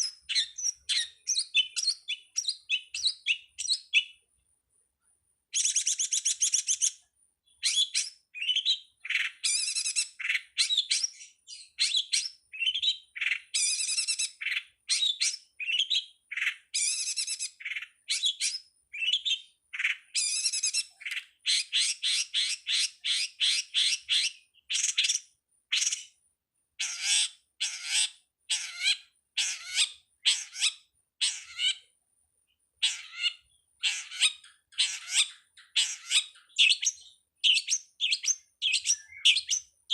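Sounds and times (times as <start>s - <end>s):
bird singing chirps: 0.0s - 4.5s, 5.5s - 26.2s, 26.8s - 39.9s.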